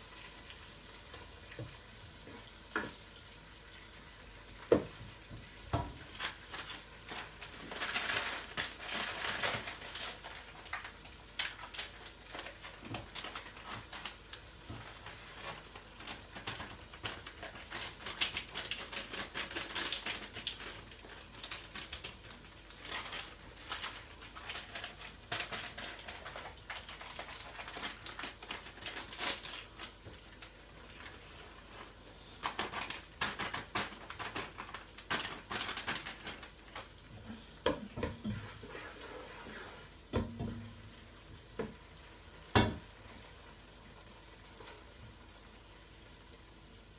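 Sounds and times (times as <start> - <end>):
rustling: 6.0 - 10.8.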